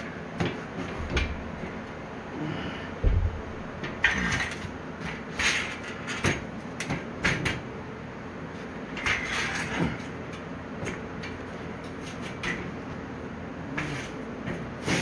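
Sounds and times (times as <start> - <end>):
metal parts scraping and knocking: 3.0 - 6.4, 9.0 - 10.1.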